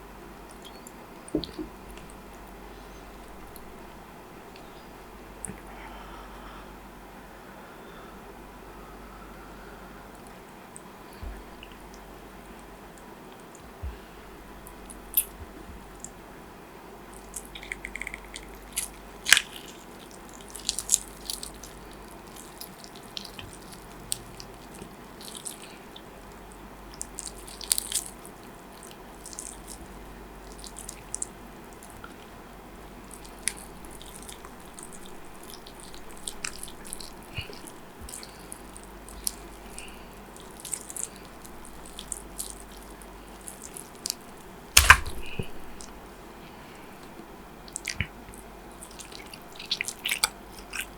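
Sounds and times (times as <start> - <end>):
chewing with mouth clicks: 0.4 - 2.6, 14.6 - 16.2, 17.1 - 50.9.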